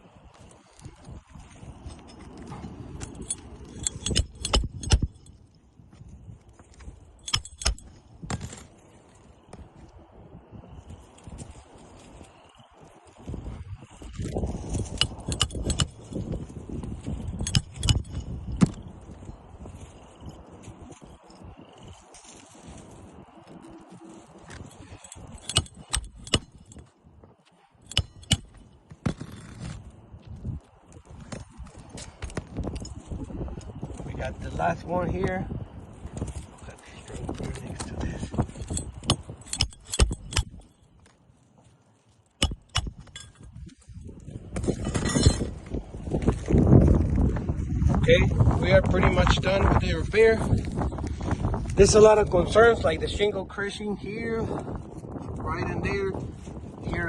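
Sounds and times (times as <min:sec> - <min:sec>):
metal tools clicking: 0:01.8 - 0:05.4, 0:07.2 - 0:08.0, 0:14.2 - 0:16.4, 0:17.0 - 0:18.8, 0:24.0 - 0:26.9, 0:27.8 - 0:28.6, 0:38.2 - 0:40.9, 0:42.4 - 0:43.5.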